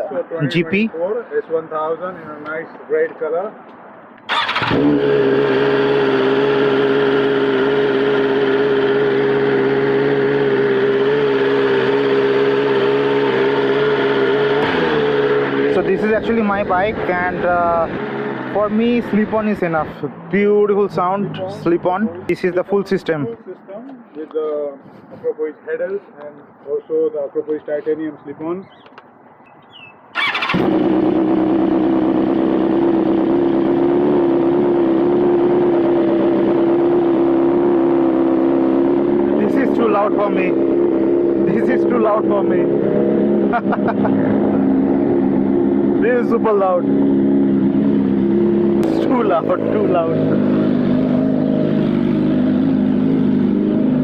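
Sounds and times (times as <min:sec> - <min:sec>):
motorcycle starter cranking: 0:04.3 - 0:05.2, 0:30.2 - 0:30.9
motorcycle engine running steadily: 0:04.7 - 0:19.8, 0:30.6 - 0:54.0
motorcycle engine idling loudly: 0:30.2 - 0:35.1.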